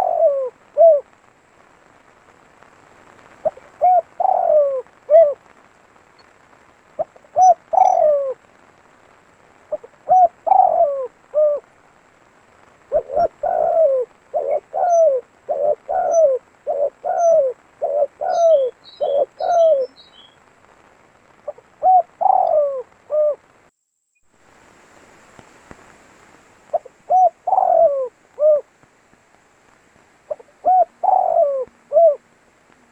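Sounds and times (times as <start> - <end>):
dove cooing: 0.0 - 1.1, 3.4 - 5.5, 7.0 - 8.5, 9.7 - 11.8, 12.8 - 20.3, 21.5 - 23.4, 26.7 - 28.7, 30.3 - 32.9
small bird chirping: 7.0 - 8.4, 12.9 - 20.4, 26.7 - 28.6.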